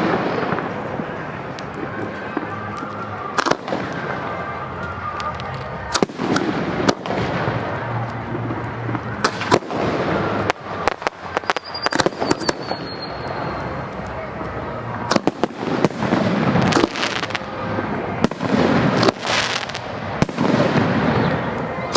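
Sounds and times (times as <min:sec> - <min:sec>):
fireworks crackling: 0:00.0 - 0:21.9
firework whistle: 0:01.8 - 0:07.6, 0:09.0 - 0:13.8
firework shell bursts: 0:10.4 - 0:13.3.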